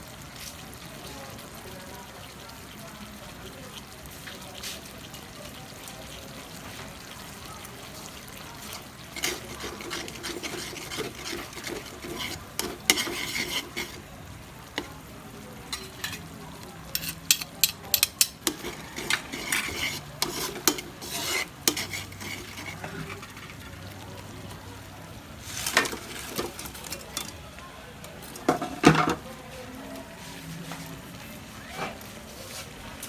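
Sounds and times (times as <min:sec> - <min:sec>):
food frying: 0:00.0 - 0:33.0
utensil scraping a frying pan: 0:08.6 - 0:15.0, 0:15.6 - 0:24.3, 0:25.3 - 0:27.4, 0:28.2 - 0:29.2.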